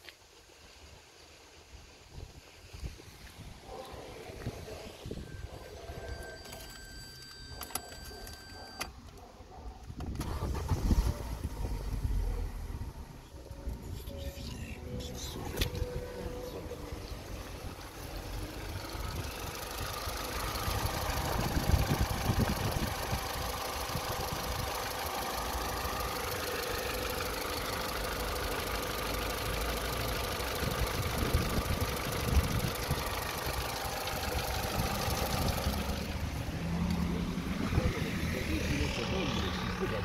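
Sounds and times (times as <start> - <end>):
car engine running: 10.2 - 40.0.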